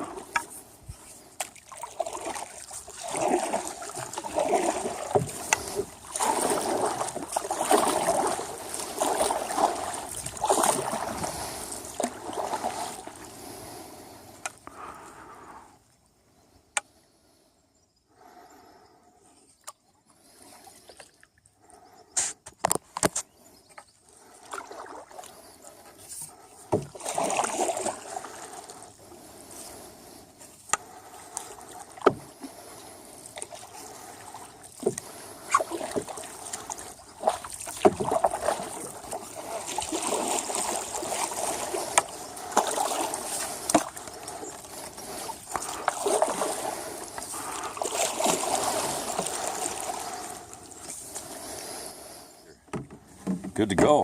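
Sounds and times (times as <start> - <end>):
paddle splashing through water: 0.0 - 15.4, 22.2 - 54.0
knocks against canoe: 26.7 - 27.2, 32.0 - 32.4, 52.7 - 54.0.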